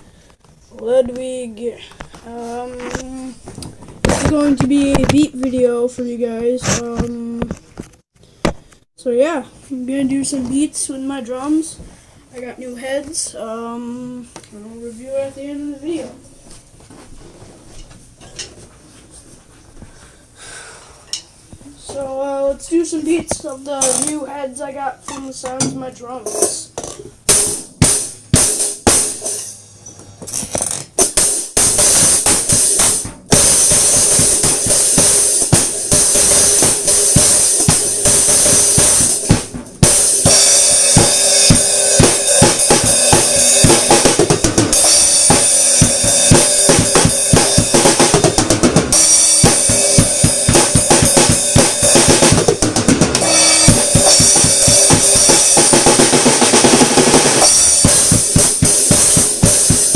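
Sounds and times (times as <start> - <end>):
drum kit groove: 0.4 - 7.6, 25.3 - 29.7, 30.3 - 59.9.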